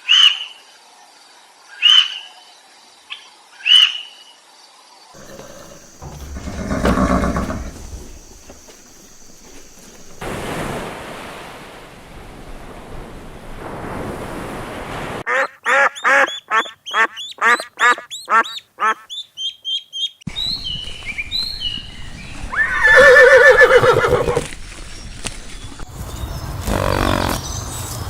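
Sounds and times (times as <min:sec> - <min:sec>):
duck quacking: 0:15.3 - 0:19.1.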